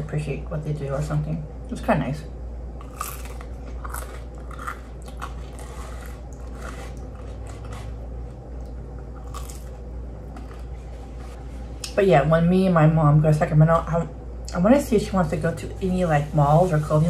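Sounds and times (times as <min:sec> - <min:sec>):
person chewing crunchy crust: 0:02.8 - 0:11.4.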